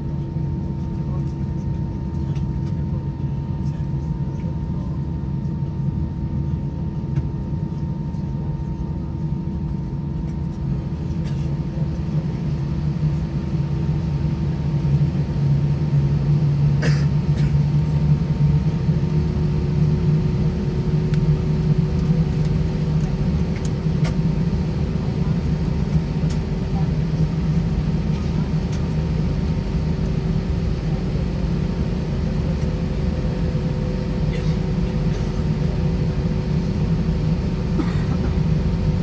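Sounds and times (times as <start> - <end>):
airplane cabin engine hum: 9.8 - 39.0.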